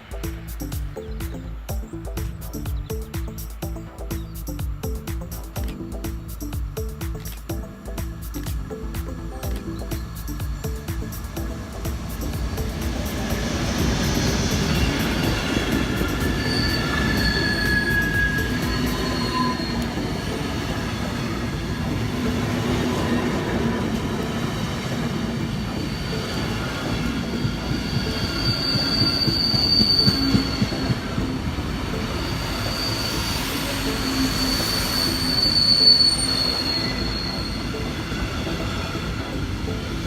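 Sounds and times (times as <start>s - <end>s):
train wheels rumbling on rails: 0.0s - 40.0s
high wheel squeal: 9.1s - 40.0s.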